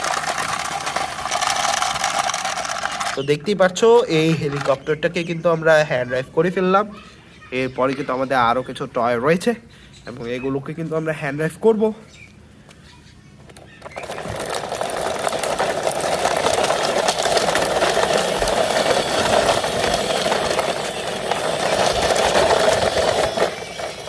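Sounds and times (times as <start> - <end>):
toy truck wheels rattling: 0.0 - 5.4, 13.4 - 24.0.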